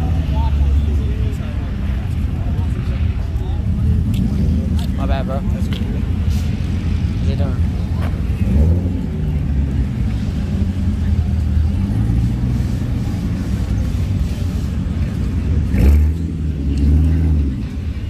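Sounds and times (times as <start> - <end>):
car engines rumbling: 0.0 - 18.0
engine revving: 3.9 - 18.0.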